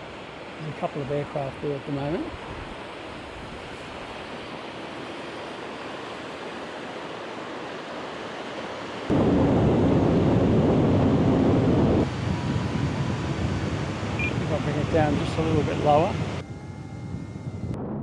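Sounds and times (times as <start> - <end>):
wind: 0.0 - 18.0
wind rumble on microphone: 9.1 - 18.0
surf: 11.4 - 16.4.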